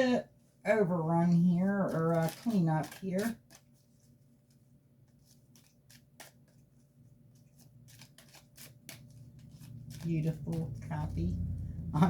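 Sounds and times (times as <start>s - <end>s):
cards being shuffled: 1.3s - 10.9s.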